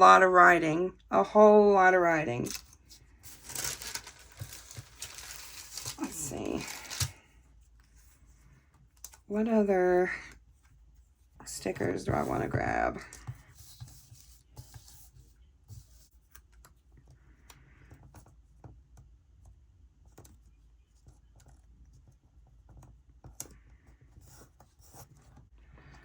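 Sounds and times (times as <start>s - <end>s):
paper rustling: 2.4s - 8.2s.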